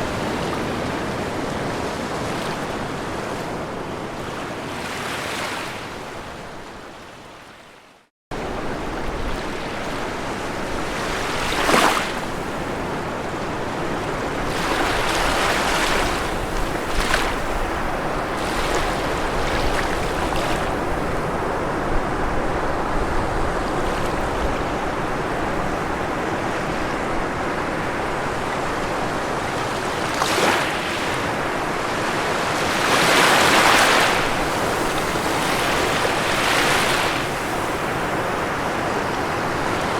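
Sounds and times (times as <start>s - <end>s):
ocean surf washing on shore: 8.4s - 39.9s
waves breaking: 8.4s - 39.9s.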